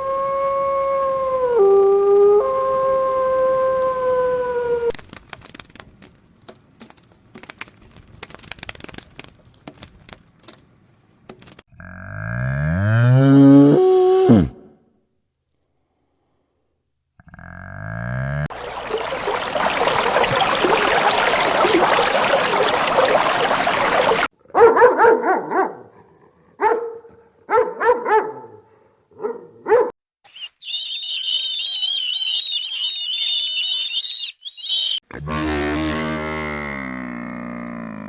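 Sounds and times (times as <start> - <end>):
dog barking: 24.5 - 30.0
high warbling animal call: 30.2 - 36.5.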